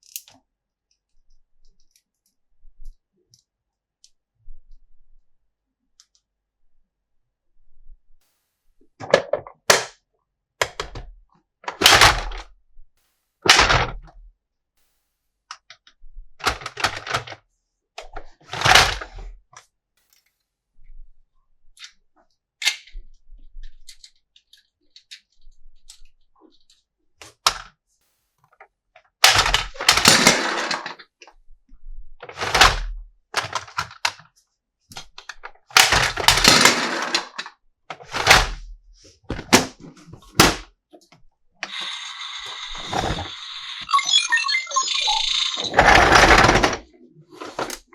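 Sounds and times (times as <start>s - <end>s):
plastic toy parts clicking: 0.0s - 2.4s.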